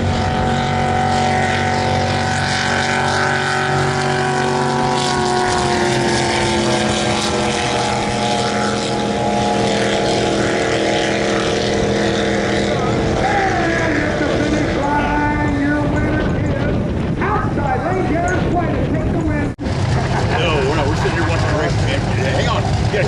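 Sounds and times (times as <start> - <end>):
racing boat engine: 0.0 - 23.0.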